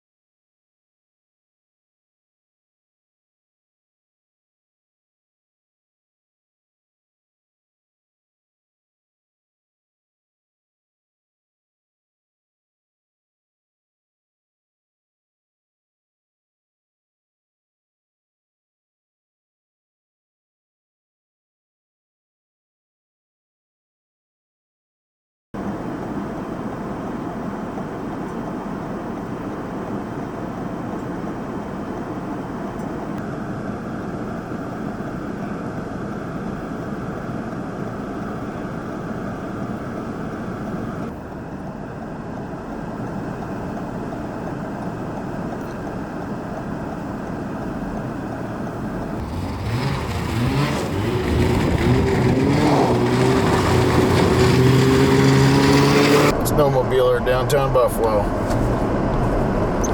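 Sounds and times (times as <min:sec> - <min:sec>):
steady rushing noise: 0:36.7 - 0:59.9
snowmobile engine revving: 0:49.2 - 0:59.9.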